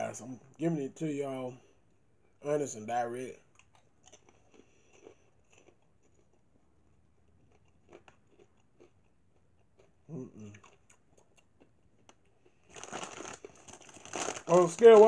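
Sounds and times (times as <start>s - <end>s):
chewing popcorn: 3.3s - 15.0s.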